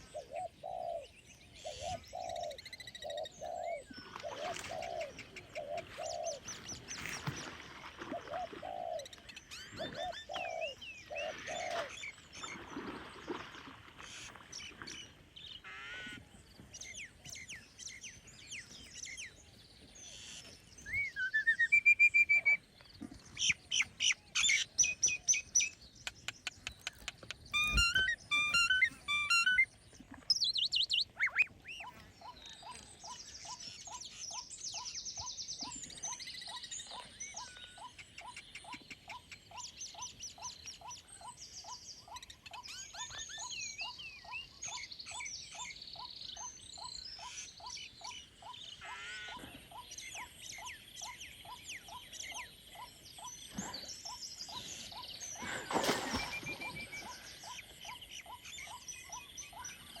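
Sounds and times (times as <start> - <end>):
birds chirping and trilling: 0.0 - 60.0
short repeated bird calls: 23.4 - 29.7.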